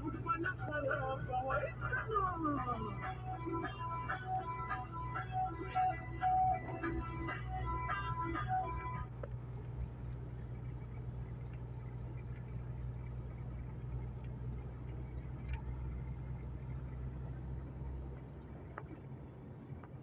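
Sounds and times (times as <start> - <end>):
music: 0.0 - 9.3
truck engine droning: 0.0 - 20.0.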